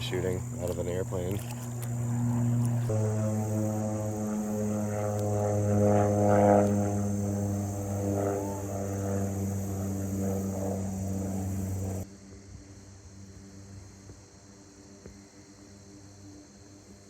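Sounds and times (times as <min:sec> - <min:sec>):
propeller airplane droning: 0:00.0 - 0:12.1.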